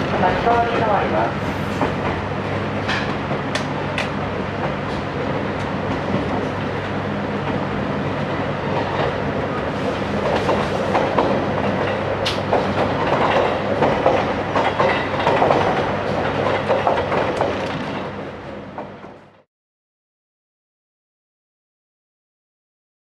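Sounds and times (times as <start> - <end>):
train running hum: 0.0 - 19.5
train wheels clicking over rail joints: 1.7 - 6.6, 10.1 - 18.1.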